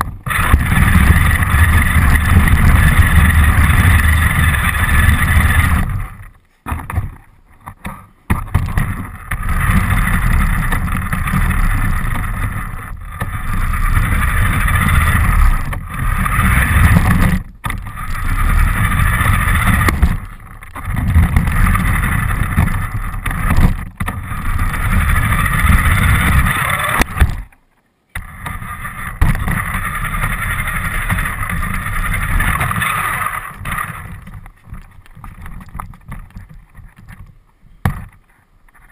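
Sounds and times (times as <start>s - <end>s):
rc car motor whine: 0.0s - 6.3s, 9.1s - 27.2s, 28.2s - 34.3s
wheels rumbling on ground: 0.0s - 27.6s, 28.2s - 38.9s.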